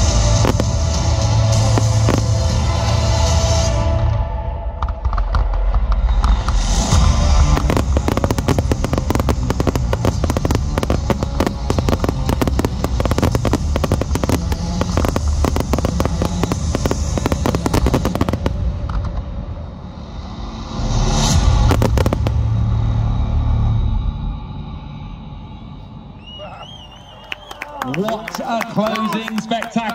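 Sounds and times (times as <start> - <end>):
firework bangs and crackle: 0.0 - 23.1.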